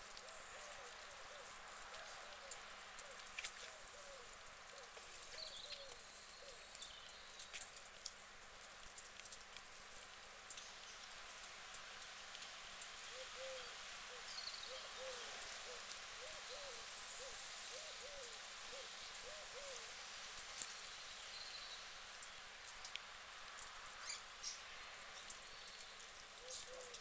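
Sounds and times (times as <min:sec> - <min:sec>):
light rain hissing: 0:00.0 - 0:27.0
faint ticks: 0:00.1 - 0:13.6, 0:20.3 - 0:21.0, 0:22.1 - 0:27.0
bird hooting: 0:13.1 - 0:19.8.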